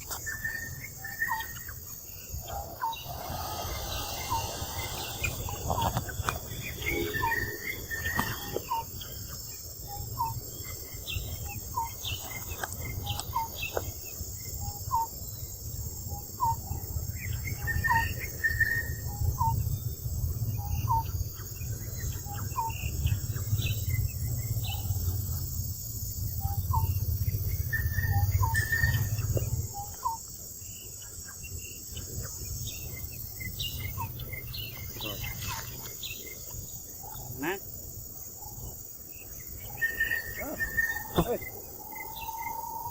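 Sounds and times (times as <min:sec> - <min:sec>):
insects chirping: 0:00.0 - 0:42.9
low rumble: 0:02.3 - 0:07.8.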